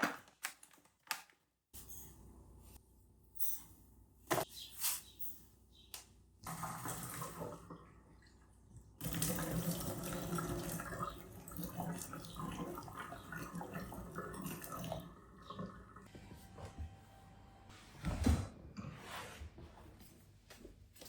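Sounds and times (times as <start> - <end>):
tap water running into sink: 6.5 - 7.9, 9.0 - 16.0.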